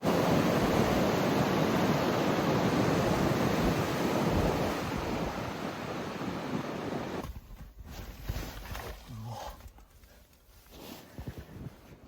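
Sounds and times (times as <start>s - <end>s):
strong wind blowing: 0.0s - 7.2s
wind buffeting microphone: 0.0s - 7.2s.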